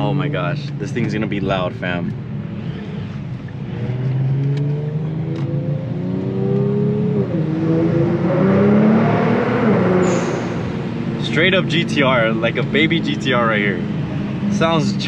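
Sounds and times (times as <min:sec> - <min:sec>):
car engine accelerating hard: 0:03.6 - 0:15.0.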